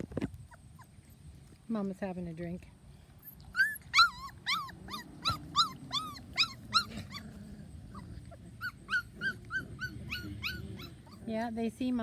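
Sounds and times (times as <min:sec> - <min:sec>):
puppies whimpering: 0:03.2 - 0:12.0.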